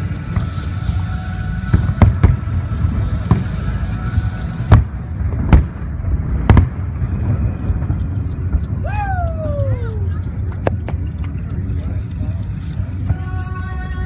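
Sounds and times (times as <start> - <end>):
faint music: 0.0 - 14.0
low rumble of continuous firing: 0.0 - 14.0
fireworks bangs: 1.7 - 11.4.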